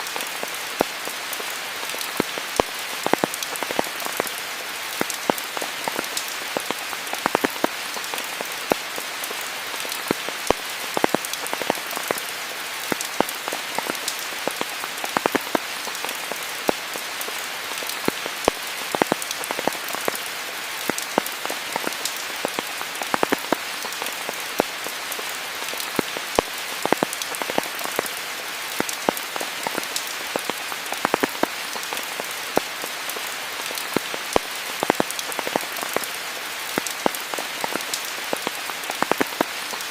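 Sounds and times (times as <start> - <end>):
rain falling: 0.0 - 39.9
raindrops ticking on leaves: 0.0 - 39.9.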